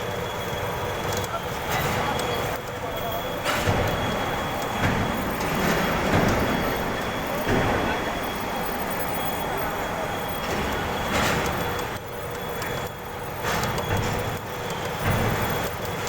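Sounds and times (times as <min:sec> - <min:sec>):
machinery noise: 0:00.0 - 0:16.0.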